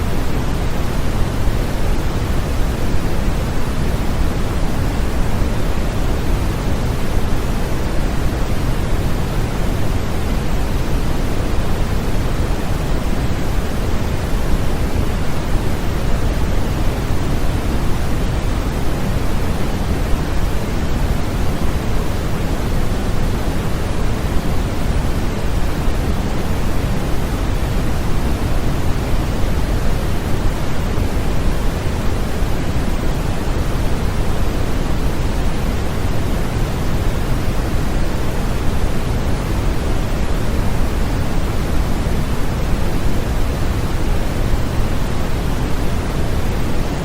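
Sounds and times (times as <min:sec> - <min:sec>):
white noise hiss: 0:00.0 - 0:47.0.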